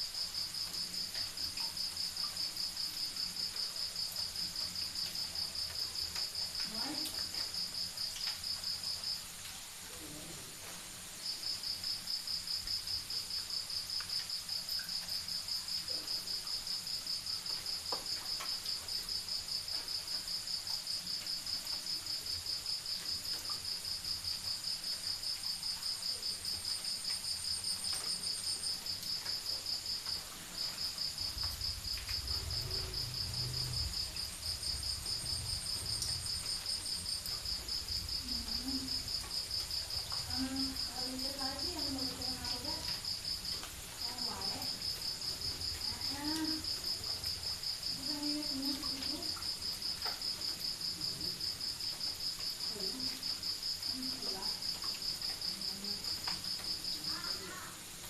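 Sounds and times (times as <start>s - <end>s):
crickets trilling: 0.0s - 58.0s
low rumble: 31.2s - 38.7s.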